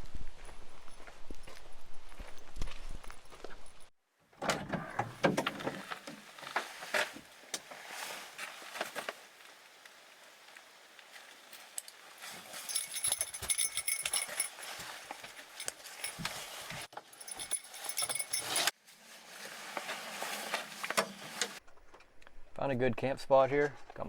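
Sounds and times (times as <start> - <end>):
metallic jingle: 12.5 - 18.7.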